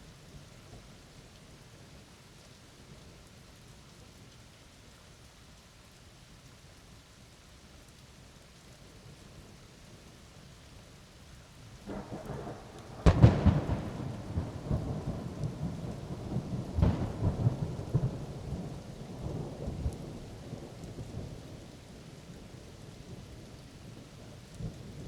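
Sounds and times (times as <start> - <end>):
steady rain hissing: 0.0 - 25.0
thunder rumbling and cracking: 11.9 - 20.8.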